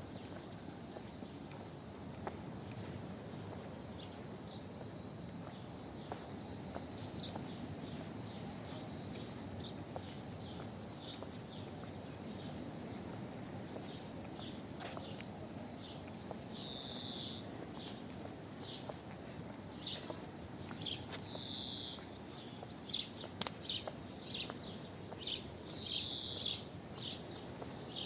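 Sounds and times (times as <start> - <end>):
steady background noise: 0.0 - 28.0
small birds chirping: 5.4 - 12.6, 15.8 - 28.0.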